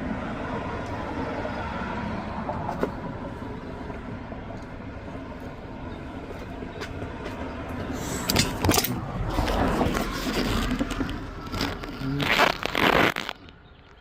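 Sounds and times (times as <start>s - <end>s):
hand tools clattering on metal parts: 8.2s - 9.0s.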